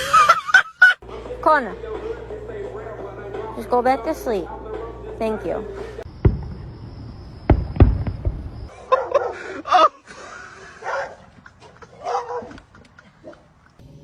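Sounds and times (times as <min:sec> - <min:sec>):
dog calling: 0:08.7 - 0:09.6, 0:10.6 - 0:13.6.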